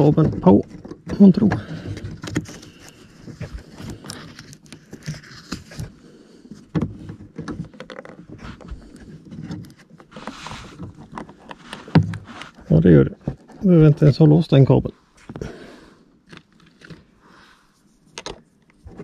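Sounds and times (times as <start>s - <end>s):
plastic clicks and knocks: 6.7s - 8.7s, 18.1s - 19.0s.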